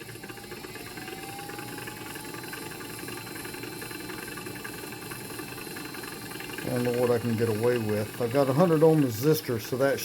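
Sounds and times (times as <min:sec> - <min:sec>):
electric motor whirring with whine: 0:00.0 - 0:10.0.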